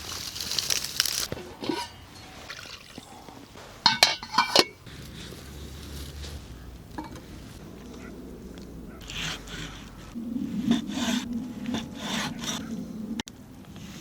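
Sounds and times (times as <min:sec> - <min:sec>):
rustling hiss: 0:00.0 - 0:01.4
cookware clinking: 0:01.6 - 0:03.0, 0:03.8 - 0:04.8.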